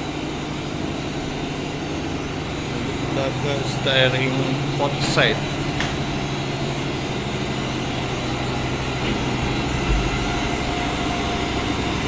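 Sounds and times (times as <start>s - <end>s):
machinery droning: 0.0s - 12.0s
low thump: 9.8s - 10.6s.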